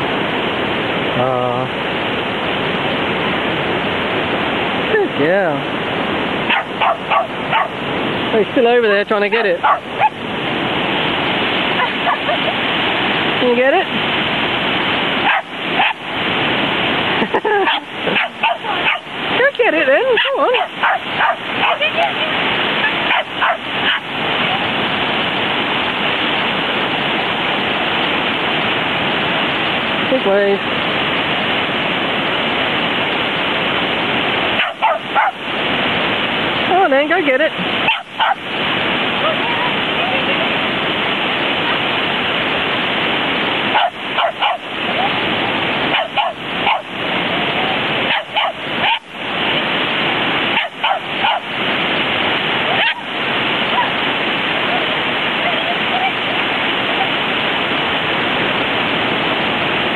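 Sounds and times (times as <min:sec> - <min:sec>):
ocean waves breaking: 0:00.0 - 0:59.9
surf: 0:00.0 - 0:59.9
wind noise: 0:00.0 - 0:59.9
dog barking: 0:06.5 - 0:07.8, 0:09.6 - 0:10.2, 0:11.8 - 0:12.4, 0:15.2 - 0:16.0, 0:17.6 - 0:19.1, 0:20.1 - 0:22.2, 0:22.8 - 0:24.7, 0:34.5 - 0:35.5, 0:37.8 - 0:38.5, 0:43.7 - 0:45.2, 0:45.9 - 0:47.0, 0:48.0 - 0:49.2, 0:50.5 - 0:51.5, 0:52.7 - 0:54.0.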